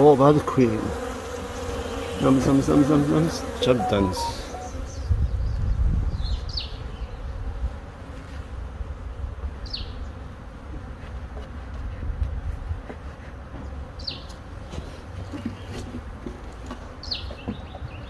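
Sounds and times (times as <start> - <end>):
honeybees buzzing: 0.0 - 4.0
bird chirping: 3.8 - 5.0.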